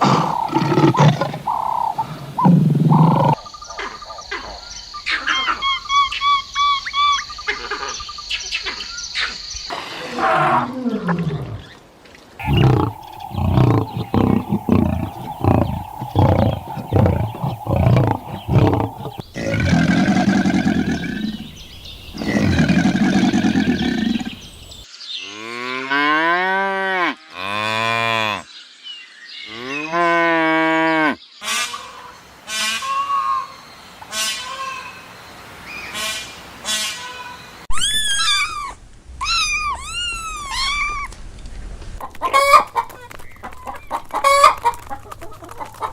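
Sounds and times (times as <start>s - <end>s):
animal calls: 0.0s - 7.9s, 12.4s - 24.6s, 37.7s - 41.1s
cattle mooing: 12.4s - 21.5s.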